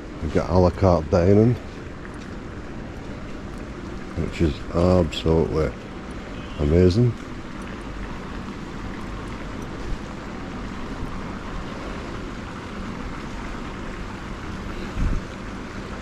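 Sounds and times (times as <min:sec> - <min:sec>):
wind on microphone: 0:14.6 - 0:15.5.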